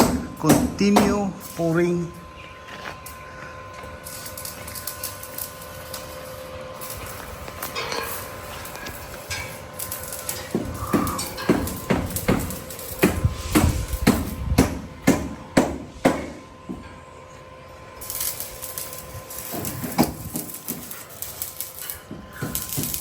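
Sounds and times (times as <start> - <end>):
hammer blows: 7.6 - 17.1.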